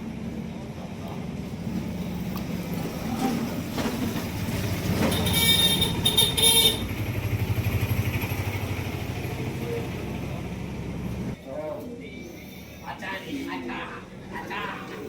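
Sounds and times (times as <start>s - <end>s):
engine running: 0.0s - 11.4s.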